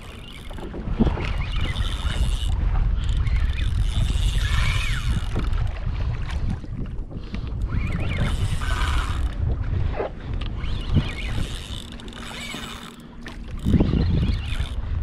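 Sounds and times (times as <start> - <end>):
fishing reel clicking and whirring: 0.0 - 5.7, 7.3 - 9.6, 10.4 - 15.0
low wind noise: 0.0 - 15.0.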